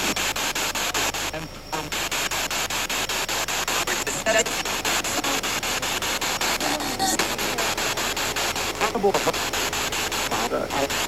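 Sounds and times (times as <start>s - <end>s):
radio voice: 0.0s - 2.2s, 3.4s - 11.0s
pulsing radio static: 0.0s - 11.0s.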